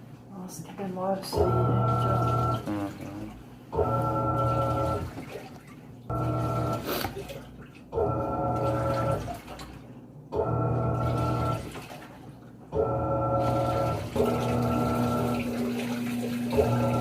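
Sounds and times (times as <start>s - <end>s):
washing machine motor humming: 0.0s - 17.0s
water sloshing: 1.4s - 10.1s, 10.8s - 12.7s.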